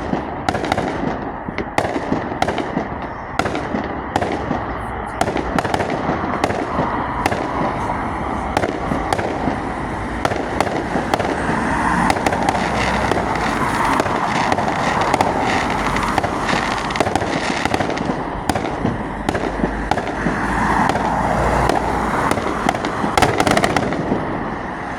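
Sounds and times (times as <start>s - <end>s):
firework bangs: 0.0s - 24.9s
firework crackling: 0.0s - 24.9s.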